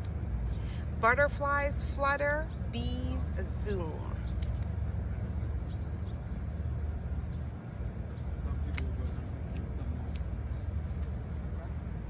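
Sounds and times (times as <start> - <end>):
insects trilling: 0.0 - 12.0
low outdoor rumble: 0.0 - 12.0
faint click: 4.3 - 4.7, 8.7 - 8.9.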